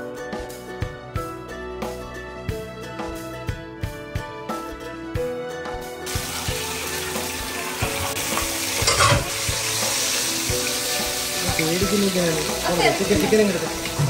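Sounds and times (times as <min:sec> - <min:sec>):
background music: 0:00.0 - 0:14.0
chicken sizzling in hot oil: 0:06.0 - 0:14.0.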